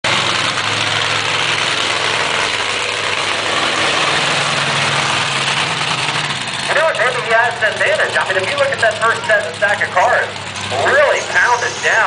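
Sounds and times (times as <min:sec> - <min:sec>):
monster truck engine running: 0:00.0 - 0:12.0.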